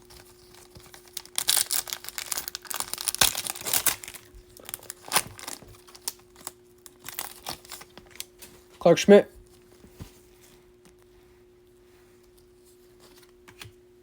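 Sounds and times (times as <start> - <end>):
card pack wrapper crinkling: 0.0 - 8.4
wrapper crackles and clicks: 0.0 - 8.5.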